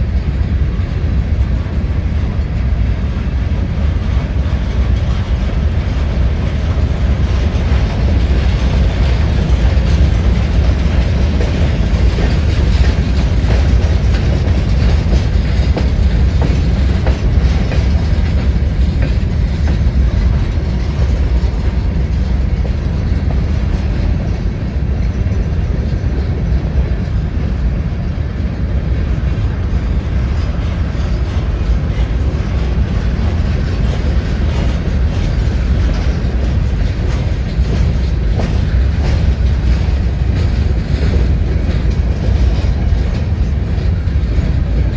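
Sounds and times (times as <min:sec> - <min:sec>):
freight train rumbling past: 0:00.0 - 0:44.9.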